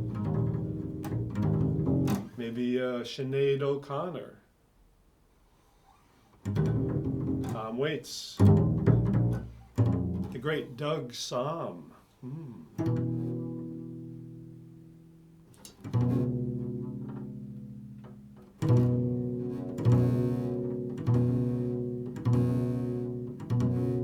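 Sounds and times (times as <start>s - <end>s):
low plucked string notes: 0.0s - 2.3s, 6.5s - 7.6s, 8.4s - 10.4s, 12.3s - 24.0s.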